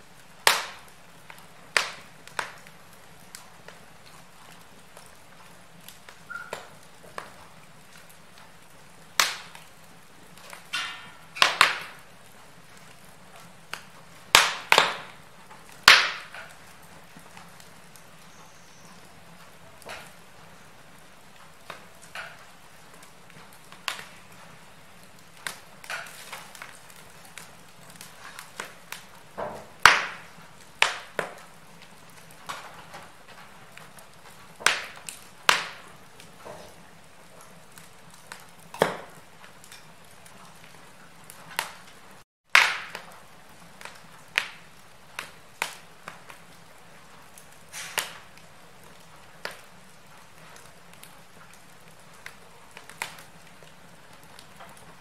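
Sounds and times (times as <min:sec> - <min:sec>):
faint steady hiss: 0:00.0 - 0:42.2
wood fire crackling and popping: 0:00.0 - 0:55.0.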